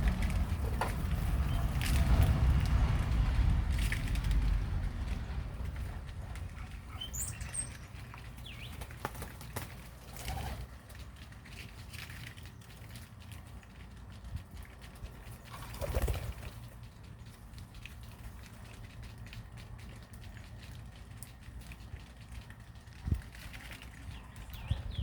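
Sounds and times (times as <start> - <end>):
low rumble: 0.0 - 8.4
birds fluttering and rustling: 0.0 - 25.0
high bird chirps: 7.0 - 7.8.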